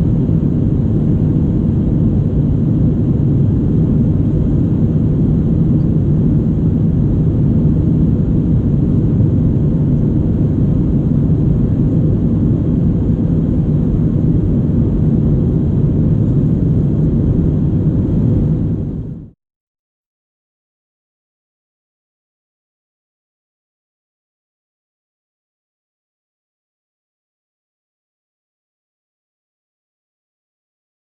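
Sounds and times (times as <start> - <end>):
jet engine rumble in cabin: 0.0 - 19.4.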